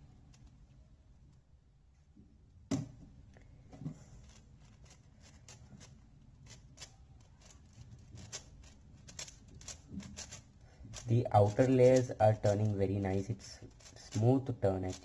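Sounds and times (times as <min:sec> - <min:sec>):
puzzle cube plastic clicks: 0:04.2 - 0:15.0.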